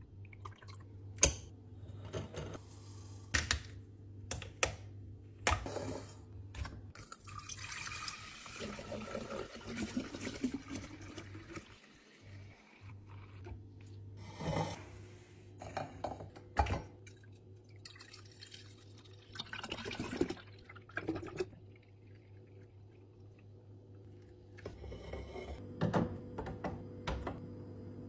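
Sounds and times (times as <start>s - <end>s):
liquid pouring into container: 6.9s - 12.2s, 17.1s - 24.5s.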